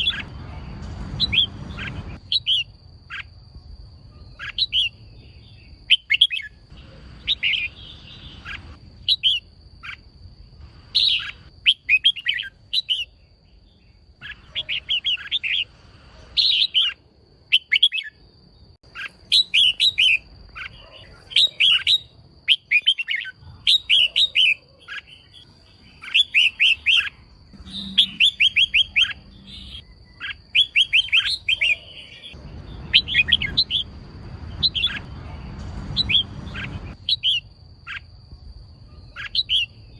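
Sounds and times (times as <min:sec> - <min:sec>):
bird chirping calls: 0:00.0 - 0:39.9
faint steady high tone: 0:27.2 - 0:30.2.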